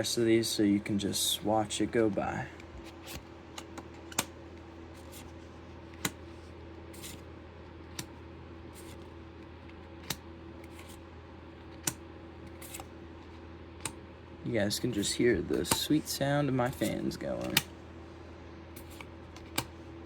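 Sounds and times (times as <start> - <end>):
fans humming: 0.0 - 20.0
card rustling: 1.8 - 13.5, 14.7 - 17.8, 18.8 - 19.9
trading cards clicking down: 14.9 - 16.0, 16.6 - 17.8.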